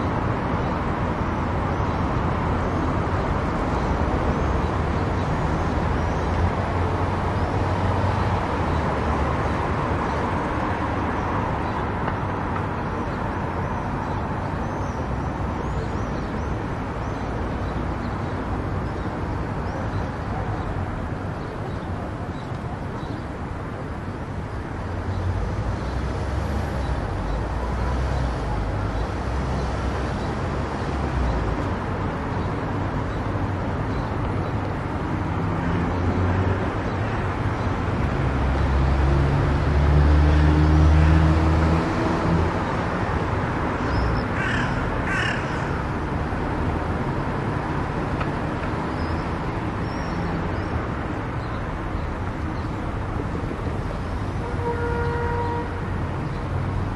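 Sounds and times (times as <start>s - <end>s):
car road and tyre noise: 0.0s - 56.9s.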